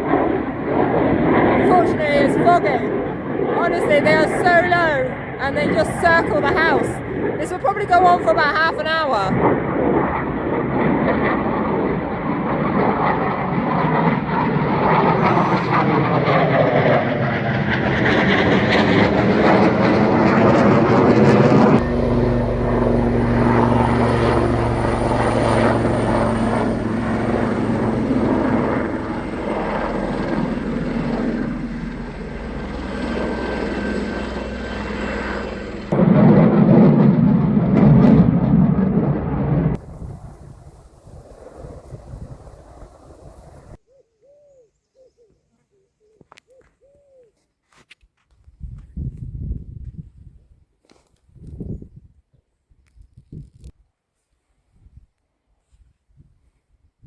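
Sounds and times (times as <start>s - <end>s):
aircraft engine drone passing overhead: 0.0s - 43.8s.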